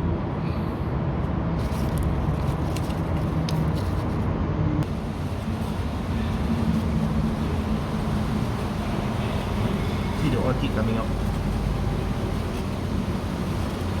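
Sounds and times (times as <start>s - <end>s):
rain: 4.8s - 14.0s
people talking: 8.8s - 11.5s.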